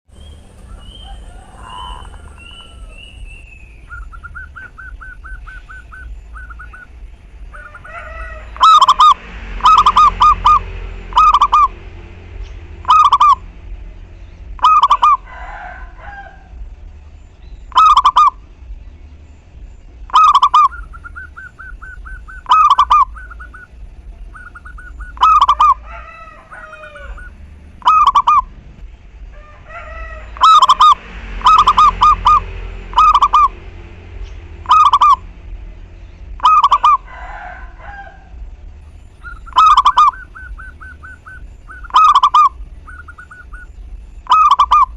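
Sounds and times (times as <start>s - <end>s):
dove cooing: 0.1s - 10.6s, 14.6s - 16.5s, 20.1s - 28.5s, 34.7s - 35.3s, 36.4s - 38.3s, 39.2s - 44.9s
small birds twittering: 0.1s - 15.2s, 16.0s - 44.9s.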